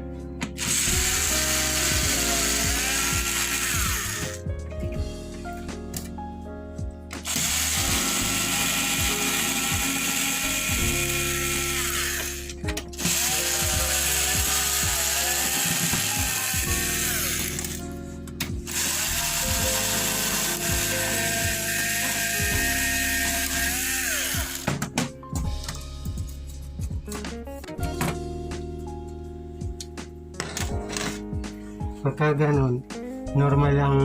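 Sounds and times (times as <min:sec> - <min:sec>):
background music with low notes: 0:00.0 - 0:34.0
electric screwdriver whining: 0:00.6 - 0:04.4, 0:07.2 - 0:24.7.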